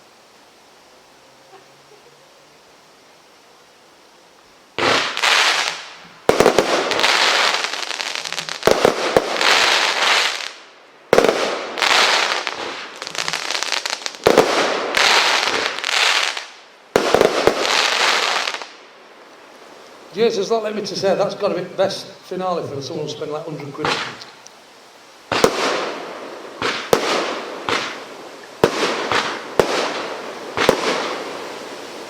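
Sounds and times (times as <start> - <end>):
firework crackling: 4.3 - 32.0
firework bangs: 4.8 - 18.8, 23.8 - 24.3, 25.3 - 32.0.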